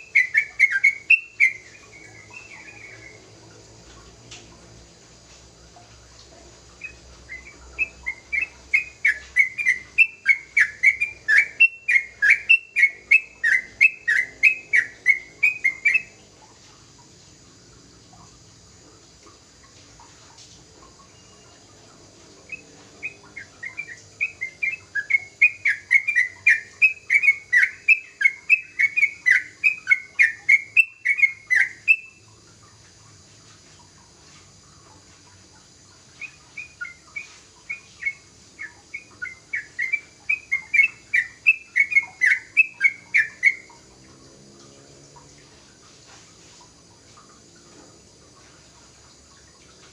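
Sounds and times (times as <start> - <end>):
bird singing: 0.0 - 4.0, 6.7 - 16.6, 19.6 - 32.6, 35.3 - 44.0.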